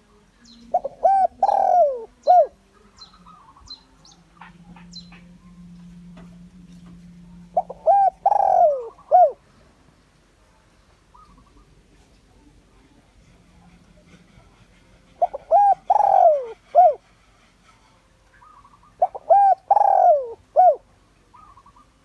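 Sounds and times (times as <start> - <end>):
dove cooing: 0.7 - 9.5, 13.2 - 17.8, 18.4 - 22.0.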